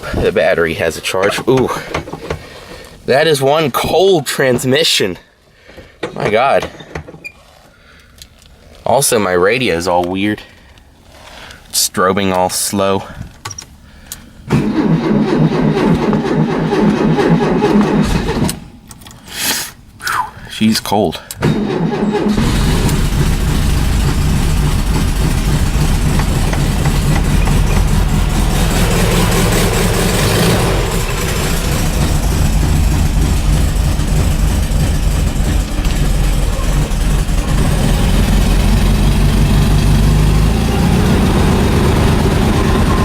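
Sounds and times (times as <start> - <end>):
car engine running rough: 14.5 - 18.5, 21.6 - 43.0.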